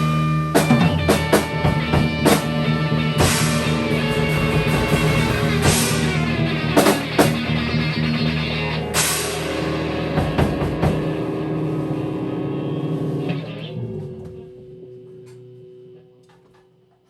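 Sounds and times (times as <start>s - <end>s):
drum kit: 0.0s - 12.3s
sustained guitar notes: 0.0s - 16.3s
cymbal crashes: 0.6s - 13.2s.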